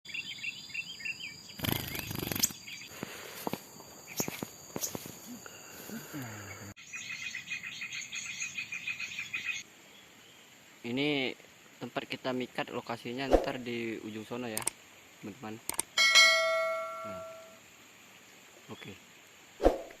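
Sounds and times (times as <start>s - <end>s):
insects buzzing: 0.1s - 20.0s
fast even chirping: 1.6s - 2.8s
rustling noise: 1.8s - 5.3s
bird chirps: 6.4s - 10.5s
clicks: 14.6s - 14.8s, 15.7s - 15.9s.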